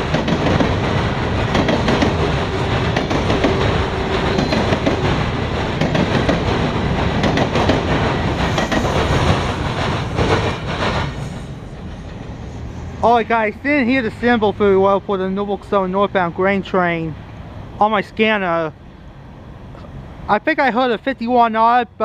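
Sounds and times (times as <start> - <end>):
wheels clicking over rail joints: 0.0 - 12.4
train cars rumbling past: 0.0 - 22.0.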